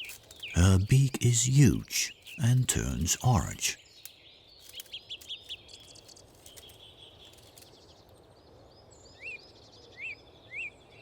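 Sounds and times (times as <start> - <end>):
birds chirping: 0.0 - 6.0.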